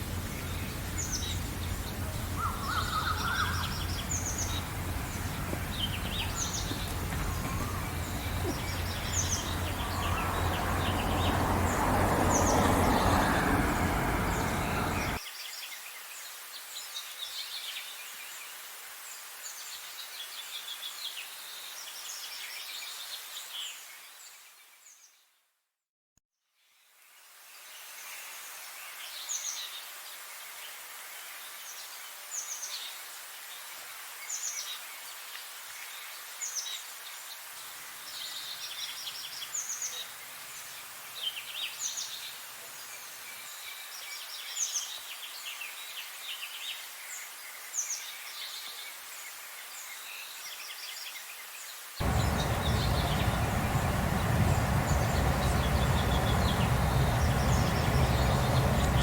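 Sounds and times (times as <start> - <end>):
loud rumbling noise: 0.0 - 15.2, 52.0 - 59.0
songbirds singing: 0.0 - 15.2, 52.0 - 59.0
steady hiss: 0.0 - 15.2, 52.0 - 59.0.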